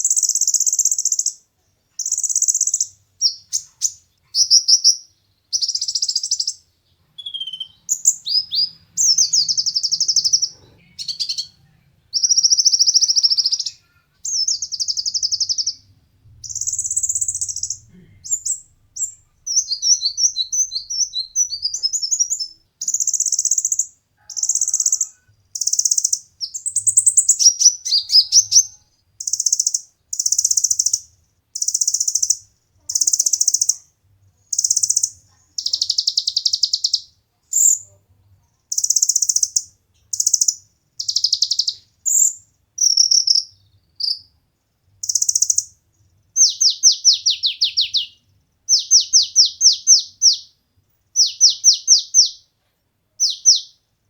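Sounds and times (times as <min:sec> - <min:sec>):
sunbird singing trilled phrases: 0:07.2 - 0:33.7, 0:34.5 - 0:37.8, 0:38.7 - 0:44.3, 0:45.0 - 0:45.8, 0:46.4 - 0:50.6, 0:51.2 - 0:52.4, 0:53.2 - 0:53.8.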